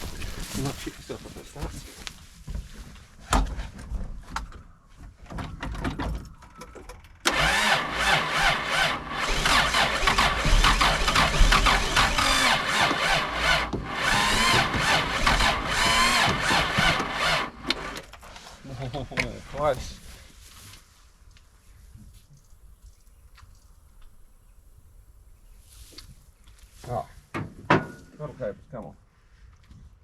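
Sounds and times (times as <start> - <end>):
engine cranking on starter motor: 7.2 - 18.2.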